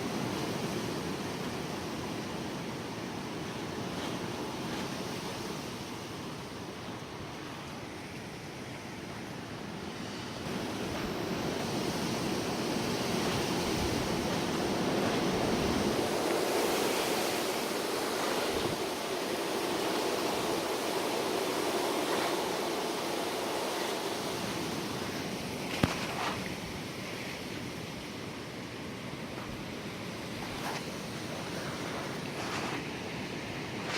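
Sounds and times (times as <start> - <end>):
gusty wind rushing: 10.5 - 26.9.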